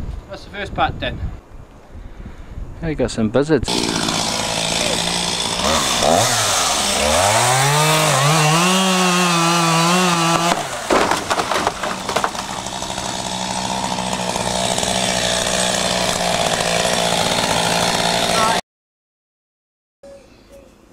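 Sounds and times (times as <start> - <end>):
chainsaw cutting wood: 3.7 - 18.6
wood snapping: 3.8 - 17.0.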